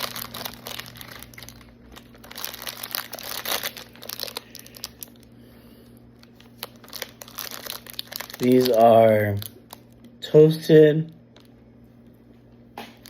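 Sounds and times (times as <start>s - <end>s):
plastic wrapper crinkling: 0.0s - 10.2s, 11.3s - 11.6s.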